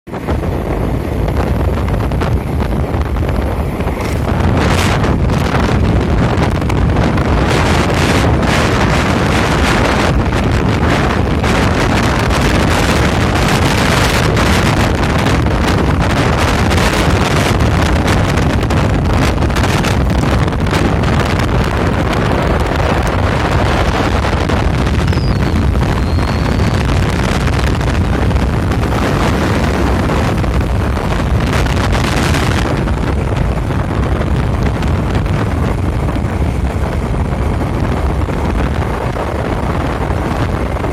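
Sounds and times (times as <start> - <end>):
low rumble of bike ride: 0.1 - 40.9
wind buffeting microphone: 0.1 - 40.9.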